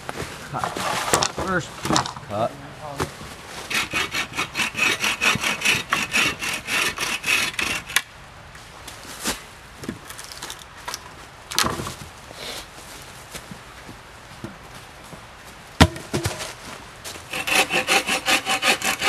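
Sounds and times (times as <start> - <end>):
hand saw cutting tree trunk: 3.6 - 8.1, 17.3 - 19.0.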